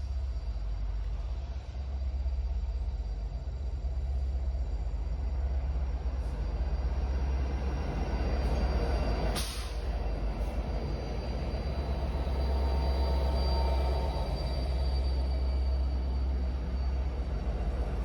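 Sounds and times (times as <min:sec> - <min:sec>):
train passing rumble: 0:00.0 - 0:18.0
sharp hiss or clank: 0:09.4 - 0:09.8.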